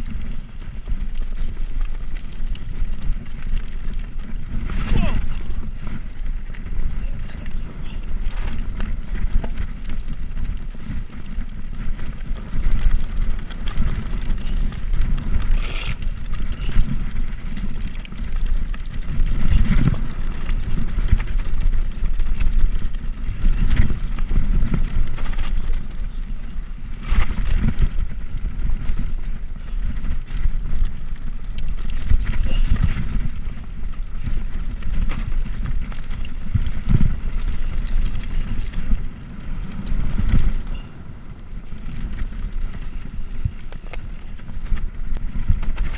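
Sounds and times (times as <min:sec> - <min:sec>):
bicycle rattling over bumps: 0:00.0 - 0:45.9
wind buffeting microphone: 0:00.0 - 0:45.9.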